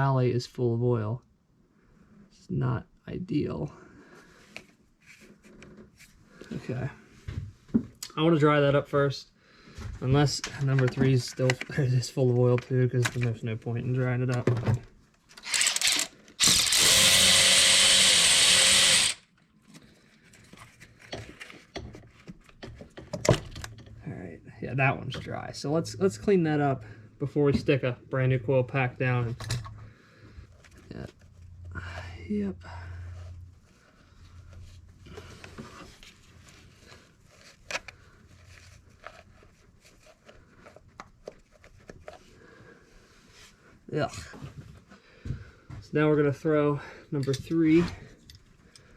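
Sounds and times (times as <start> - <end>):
power tool running: 15.4 - 19.2.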